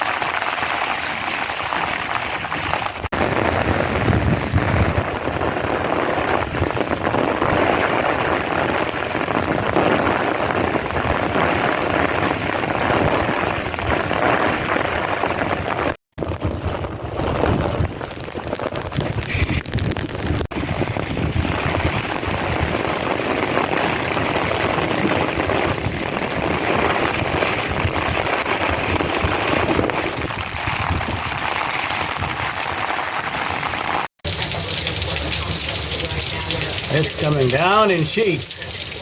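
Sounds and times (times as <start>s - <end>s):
heavy rain pouring: 0.0s - 39.0s.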